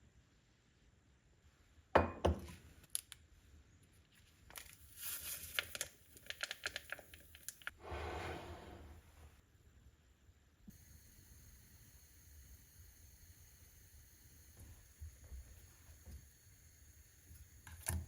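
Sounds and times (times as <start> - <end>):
packaging crinkling and tearing: 4.2 - 7.8.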